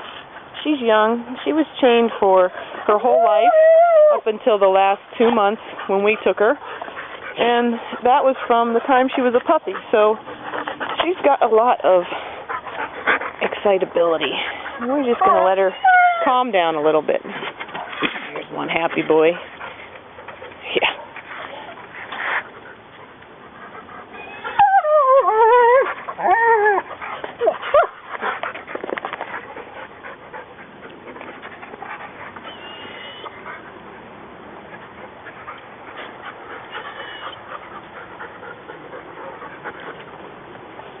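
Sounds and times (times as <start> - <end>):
dog whining: 3.0 - 4.3, 15.1 - 16.5, 24.1 - 28.0, 32.4 - 33.4, 36.7 - 37.4.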